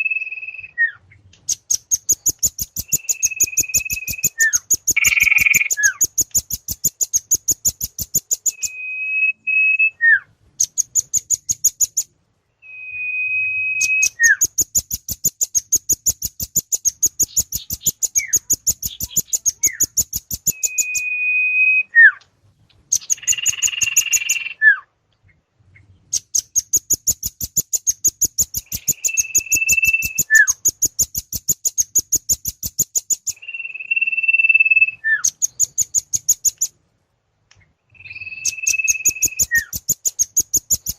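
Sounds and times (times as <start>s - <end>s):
rapid high bird ticking: 1.2s - 8.8s, 10.4s - 12.2s, 13.8s - 21.2s, 22.7s - 24.6s, 26.1s - 36.8s, 37.9s - 40.9s
bird whistle and falling note: 12.6s - 14.4s.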